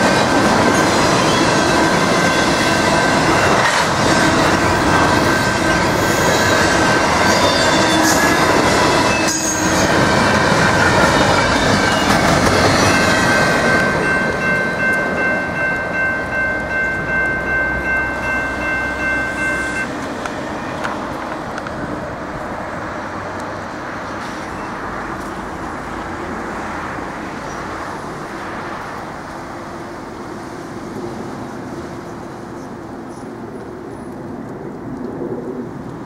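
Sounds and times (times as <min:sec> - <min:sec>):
freight train wheels rolling: 0:00.0 - 0:27.8
crossing bell ringing: 0:01.2 - 0:04.7, 0:05.4 - 0:20.9.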